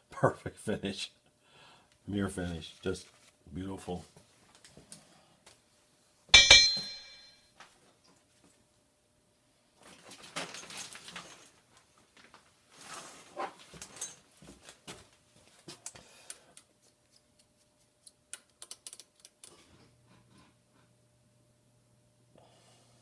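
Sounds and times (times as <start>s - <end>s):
tools clicking and tapping: 6.4s - 7.4s.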